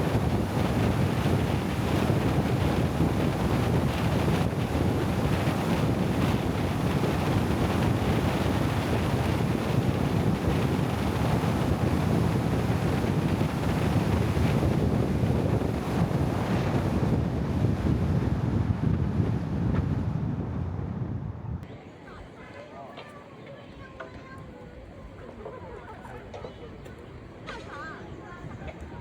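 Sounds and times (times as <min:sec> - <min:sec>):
wind buffeting microphone: 0:00.0 - 0:22.3, 0:23.6 - 0:29.0.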